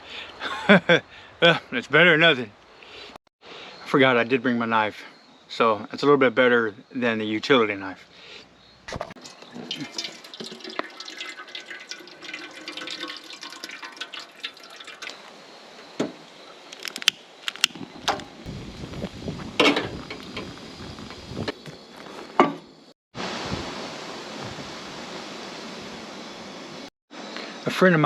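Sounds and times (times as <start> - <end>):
water pouring and splashing: 8.9 - 15.2.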